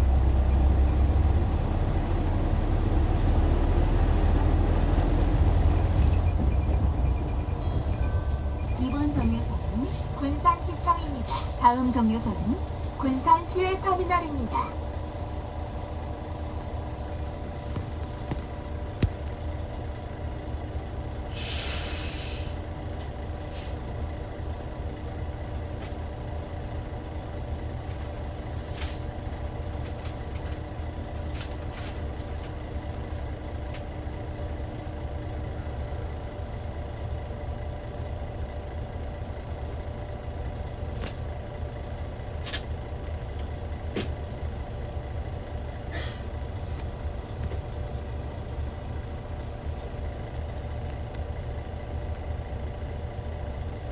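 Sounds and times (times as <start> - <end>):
bus diesel engine running: 0.0 - 53.9
compressed air hiss: 21.4 - 22.5.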